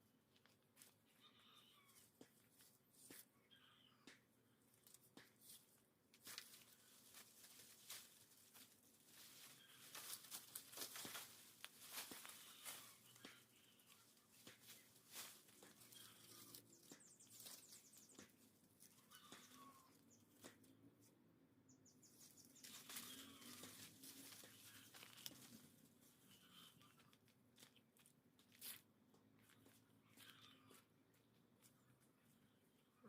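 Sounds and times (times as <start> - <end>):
dry leaves crunching: 6.2 - 18.2, 22.1 - 25.8.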